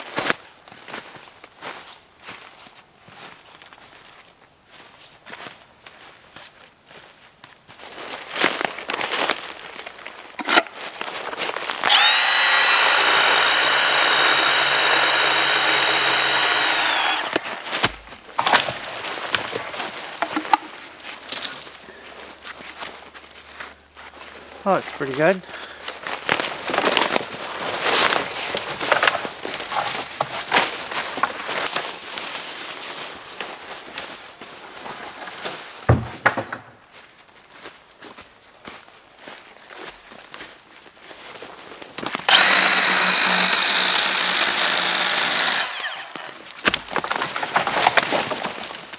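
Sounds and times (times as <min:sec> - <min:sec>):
dry wood cracking and snapping: 0:08.6 - 0:20.4, 0:25.9 - 0:31.9, 0:41.8 - 0:48.9
cordless saw whining: 0:11.8 - 0:17.7, 0:42.3 - 0:46.5.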